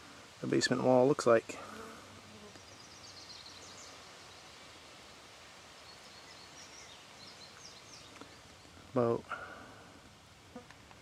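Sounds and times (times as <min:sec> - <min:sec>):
outdoor background noise: 0:00.0 - 0:11.0
songbird chirping: 0:02.1 - 0:09.5.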